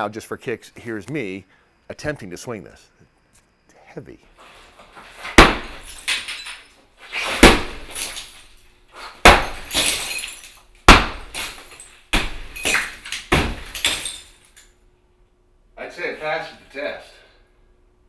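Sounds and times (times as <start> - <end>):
sledgehammer striking: 5.2 - 6.3, 7.2 - 8.3, 9.2 - 14.2
breaking material clattering: 9.2 - 14.7.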